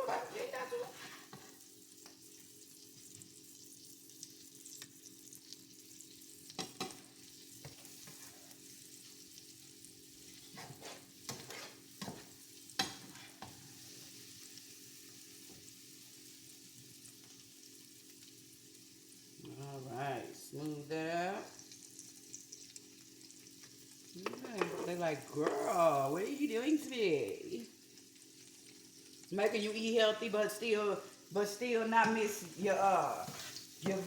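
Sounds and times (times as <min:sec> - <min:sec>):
utensil scraping a pan: 0:00.0 - 0:01.5, 0:07.6 - 0:08.6, 0:10.2 - 0:13.6, 0:32.0 - 0:34.0
chickpeas sizzling in a pan: 0:00.0 - 0:34.0.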